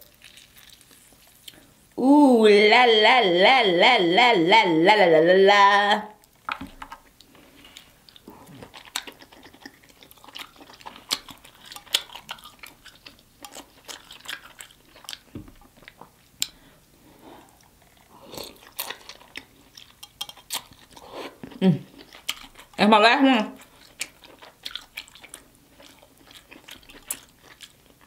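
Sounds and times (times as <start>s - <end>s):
person chewing and biting: 6.2s - 16.6s, 17.5s - 22.8s, 23.6s - 28.0s.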